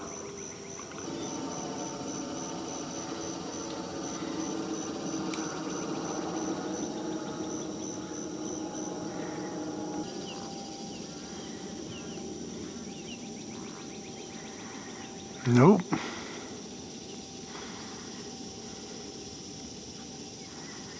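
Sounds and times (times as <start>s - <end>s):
rising bird chirps: 0.0s - 15.7s
high-pitched pulsed insect note: 0.0s - 20.9s
steady low hum: 0.0s - 20.9s.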